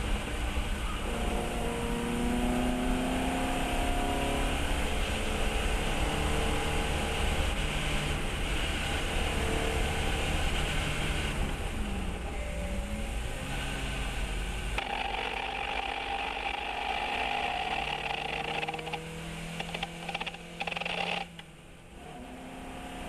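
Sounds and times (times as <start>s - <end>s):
race car engine at speed: 0.0s - 23.0s
steady rush of noise: 4.4s - 22.1s.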